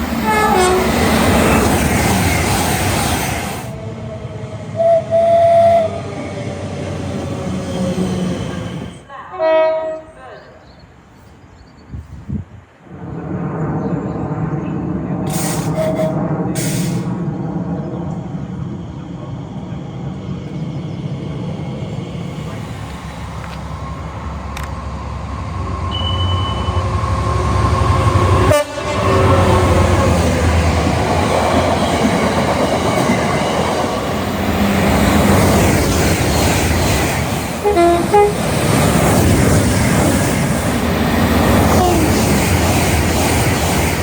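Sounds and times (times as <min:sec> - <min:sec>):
train rumbling past: 0:00.0 - 0:44.0
two-tone train horn toots: 0:00.2 - 0:01.0, 0:04.8 - 0:06.0, 0:09.3 - 0:10.1, 0:28.4 - 0:29.5, 0:37.6 - 0:38.4, 0:41.7 - 0:42.2.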